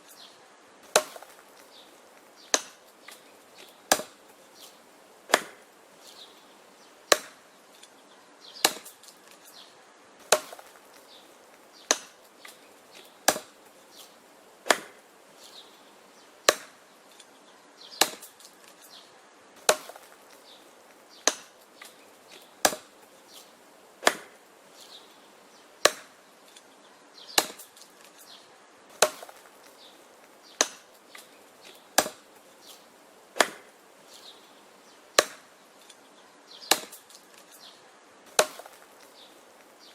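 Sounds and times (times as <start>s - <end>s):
axe chopping wood: 0.8s - 4.2s, 5.3s - 5.7s, 7.1s - 7.4s, 8.6s - 9.4s, 10.2s - 15.0s, 16.4s - 16.9s, 17.9s - 18.8s, 19.6s - 24.4s, 25.8s - 26.7s, 27.3s - 28.2s, 28.9s - 29.9s, 30.5s - 32.8s, 33.4s - 33.7s, 35.2s - 35.6s, 36.6s - 37.5s, 38.3s - 39.2s.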